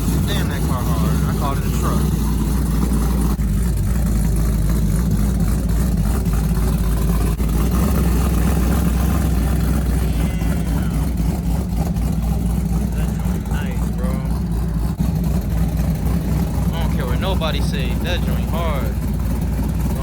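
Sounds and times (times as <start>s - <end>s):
car engine rumbling: 0.0s - 20.0s.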